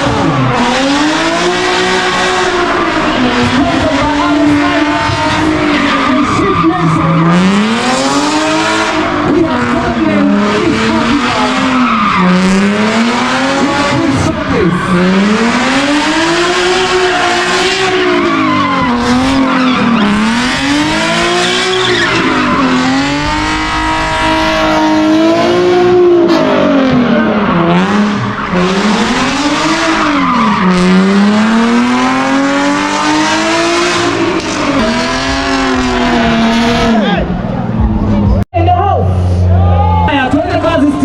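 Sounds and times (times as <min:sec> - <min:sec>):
car engine revving: 0:00.0 - 0:38.5
tyres squealing: 0:10.1 - 0:32.4.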